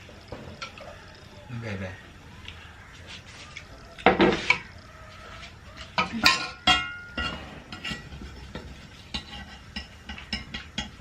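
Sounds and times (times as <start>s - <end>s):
metal kitchenware clinking: 5.9s - 11.0s.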